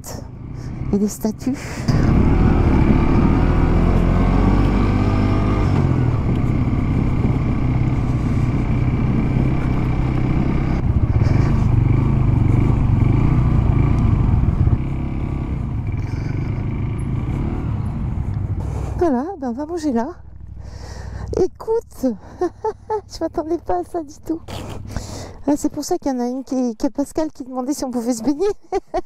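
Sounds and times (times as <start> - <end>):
motorcycle engine running: 0.0 - 22.4.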